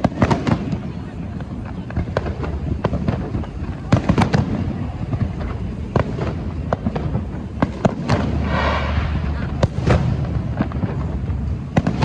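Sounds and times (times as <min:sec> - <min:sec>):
fireworks bangs: 0:00.0 - 0:12.0
fireworks crackling: 0:00.0 - 0:12.0
low rumble: 0:05.1 - 0:11.8.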